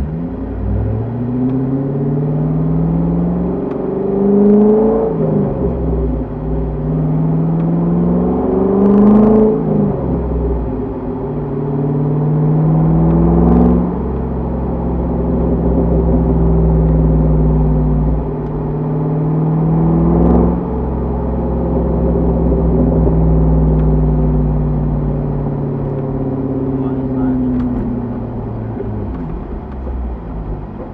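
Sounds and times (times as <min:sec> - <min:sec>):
sports car exhaust accelerating: 0:00.0 - 0:30.9.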